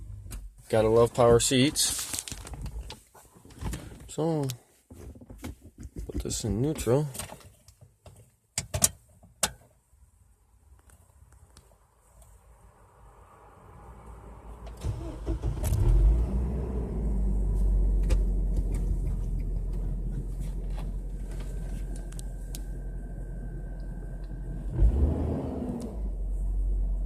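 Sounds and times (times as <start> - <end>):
engine starting and idling: 14.7 - 17.4.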